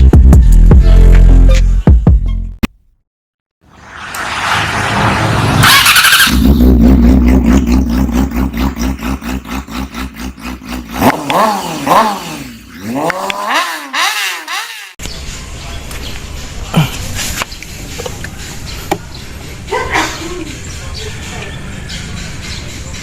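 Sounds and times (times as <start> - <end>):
motorcycle engine idling and revving: 4.0 - 15.1, 20.4 - 23.0.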